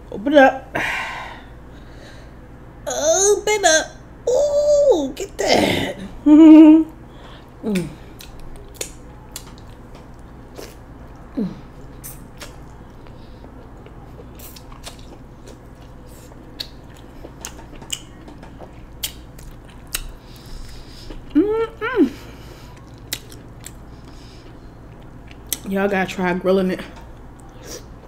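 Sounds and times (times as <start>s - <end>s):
wet chewing and lip smacking: 7.8s - 21.4s, 22.7s - 25.7s
person humming mm: 11.3s - 11.7s, 21.3s - 22.4s.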